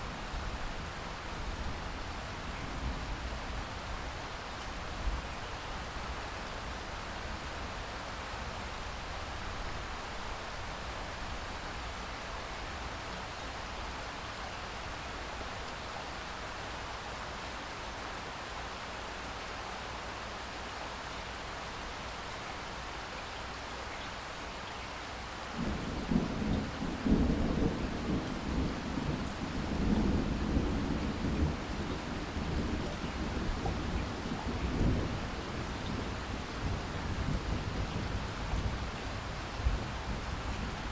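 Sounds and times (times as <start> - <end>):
steady rain: 0.0 - 40.9
rolling thunder: 25.6 - 38.9.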